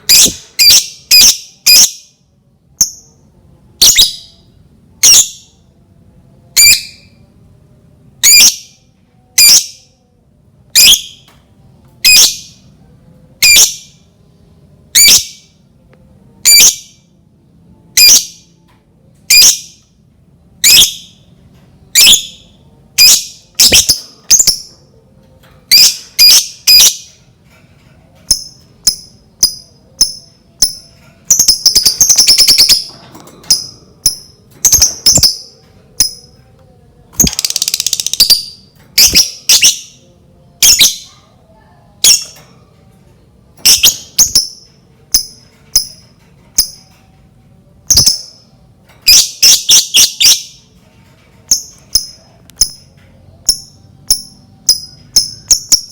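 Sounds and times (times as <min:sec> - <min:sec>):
bird chirps: 0:25.7 - 0:27.2, 0:28.3 - 0:32.9, 0:33.5 - 0:36.4, 0:37.2 - 0:40.0, 0:43.6 - 0:46.9, 0:47.9 - 0:50.8.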